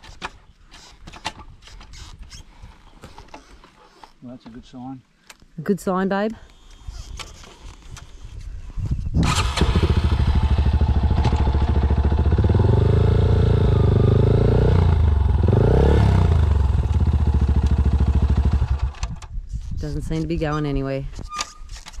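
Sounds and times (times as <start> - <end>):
motorcycle engine revving: 9.2 - 19.0.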